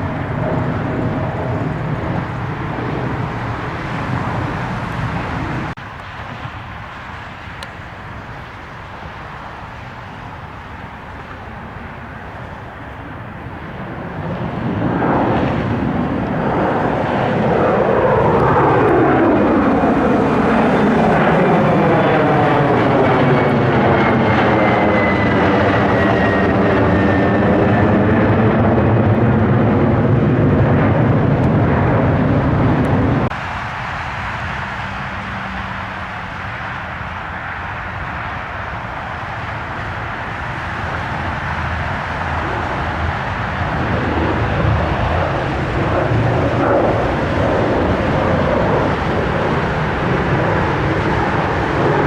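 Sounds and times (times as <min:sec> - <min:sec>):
airplane passing close by: 0:00.0 - 0:52.0.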